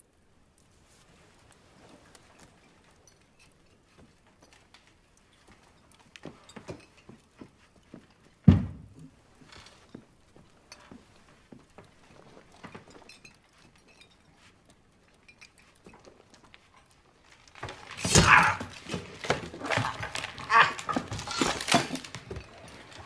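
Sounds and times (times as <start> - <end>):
faint taps and shuffles: 0.6 - 17.1.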